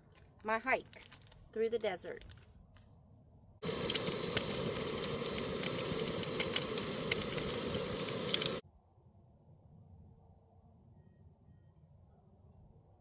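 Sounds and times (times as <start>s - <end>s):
food sizzling in a pan: 3.6s - 8.6s
small pops and crackles: 3.6s - 8.6s.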